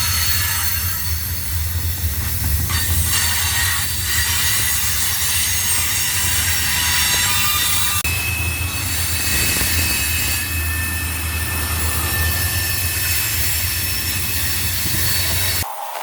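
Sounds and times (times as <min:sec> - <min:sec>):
freight train rumbling: 0:00.0 - 0:15.8
train wheels squealing: 0:00.0 - 0:16.0.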